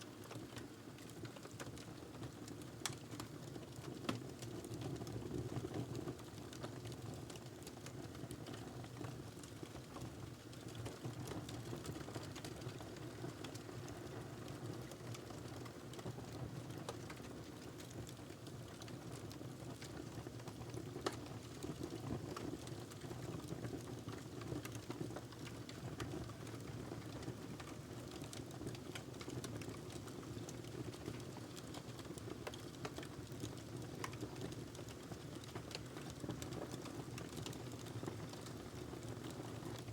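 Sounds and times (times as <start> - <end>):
wood fire crackling and rumbling: 0.1 - 39.9.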